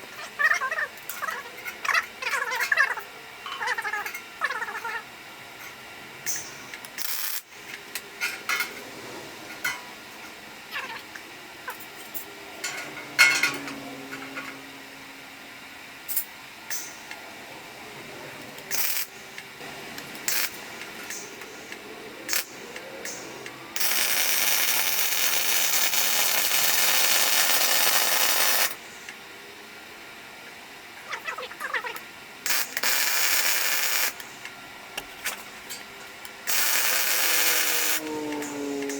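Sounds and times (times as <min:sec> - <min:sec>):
plasma cutter hissing: 0:06.3 - 0:07.5, 0:18.7 - 0:28.8, 0:32.4 - 0:34.2, 0:36.4 - 0:38.9
metal clanks: 0:12.1 - 0:14.6.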